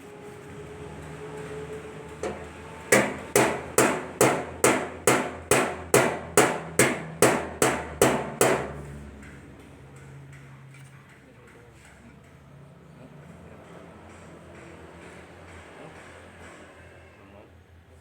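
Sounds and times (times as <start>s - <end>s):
hammer striking sheet metal: 2.2s - 9.4s.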